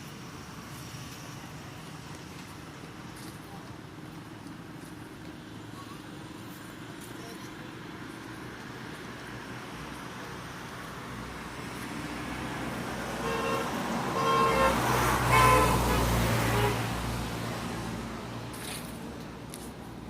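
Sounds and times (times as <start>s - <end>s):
vehicle horn toots: 13.2s - 16.9s.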